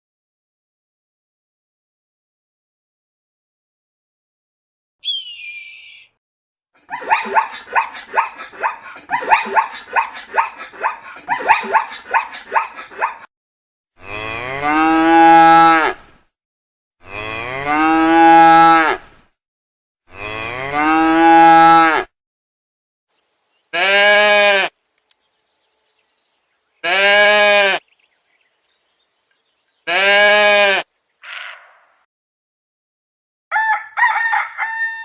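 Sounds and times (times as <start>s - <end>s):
cow mooing: 14.0s - 16.0s, 17.0s - 19.0s, 20.1s - 22.1s, 23.8s - 24.7s, 26.8s - 27.8s, 29.9s - 30.8s
animal short repeated calls: 29.9s - 32.0s.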